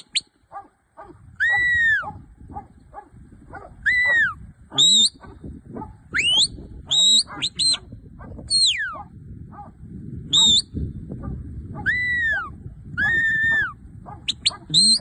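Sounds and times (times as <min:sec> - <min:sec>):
shepherd's whistle notes: 0:03.9 - 0:05.2, 0:06.1 - 0:07.8, 0:10.3 - 0:10.8, 0:11.9 - 0:15.0.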